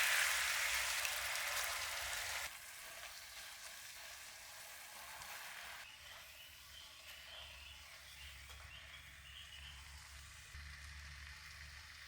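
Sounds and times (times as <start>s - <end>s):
food sizzling in hot oil: 0.0s - 9.2s.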